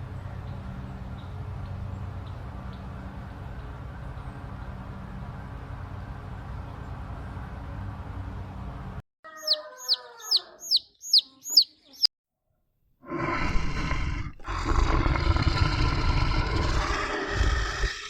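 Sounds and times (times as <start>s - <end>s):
bird chirps: 9.3s - 12.1s
large animal rough call: 13.0s - 18.0s.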